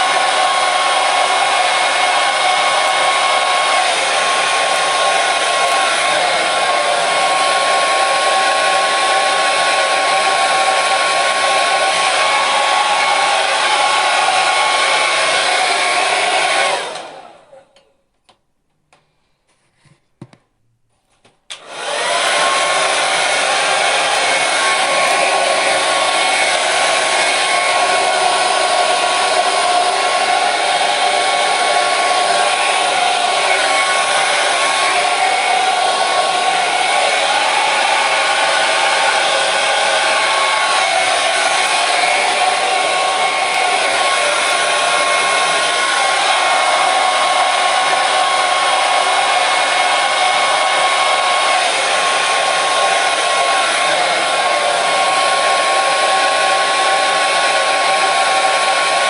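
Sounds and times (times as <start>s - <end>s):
hair dryer running: 0.0s - 17.9s, 21.5s - 59.0s
hair dryer switch click: 2.7s - 6.6s, 21.5s - 27.6s, 40.3s - 45.4s.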